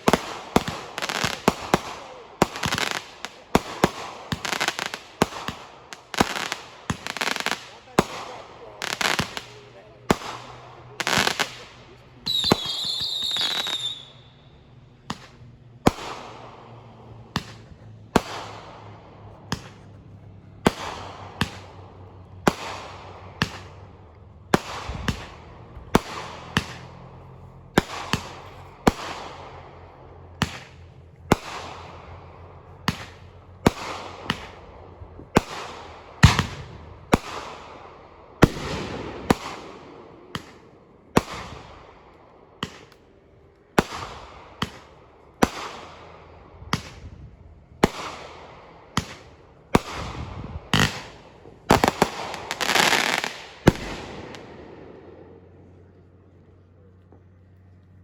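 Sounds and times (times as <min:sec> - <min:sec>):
fireworks bangs: 0:00.0 - 0:55.8
firework whistle shrieking: 0:12.3 - 0:14.4.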